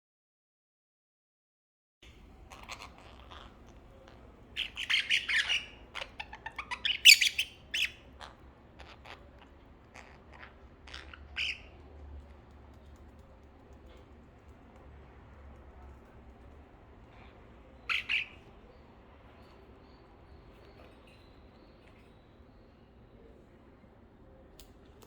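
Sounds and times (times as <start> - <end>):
pet bird calling: 2.1 - 11.7, 17.9 - 18.4.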